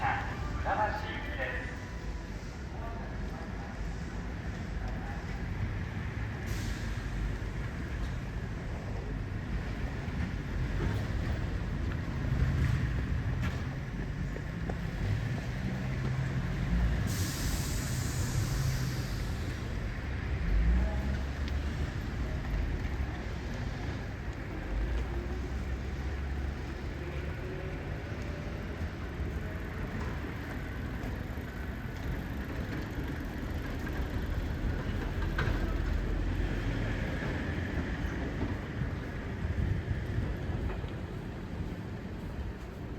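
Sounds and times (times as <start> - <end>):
electric train rumble: 0.0 - 42.9
compressed-air hiss: 17.0 - 19.6.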